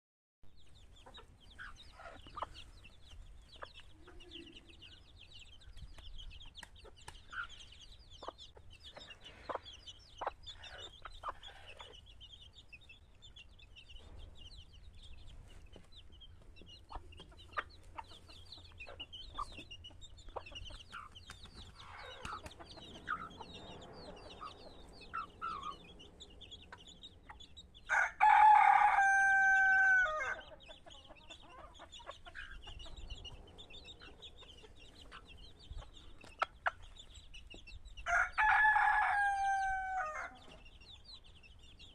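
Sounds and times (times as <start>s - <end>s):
chicken clucks: 0.6s - 41.9s
chicks peeping: 0.6s - 41.9s
rooster crowing: 27.9s - 30.5s, 38.1s - 40.4s.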